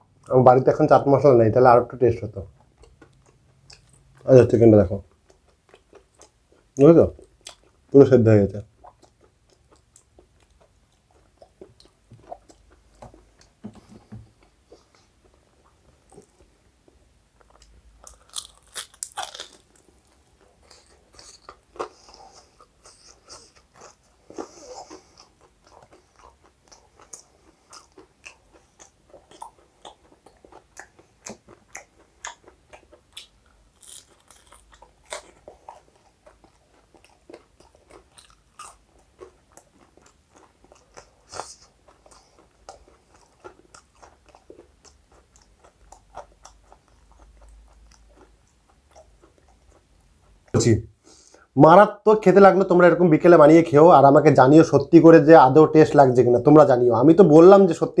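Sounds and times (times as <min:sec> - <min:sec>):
person chewing crispy food: 0:02.6 - 0:04.3, 0:05.1 - 0:07.9, 0:08.7 - 0:13.6, 0:14.3 - 0:50.6.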